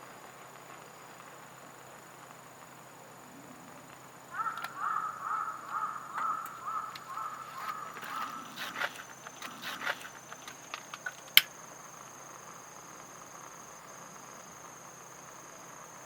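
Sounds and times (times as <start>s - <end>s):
high insect drone: 0.0s - 16.0s
crows cawing: 4.3s - 10.0s.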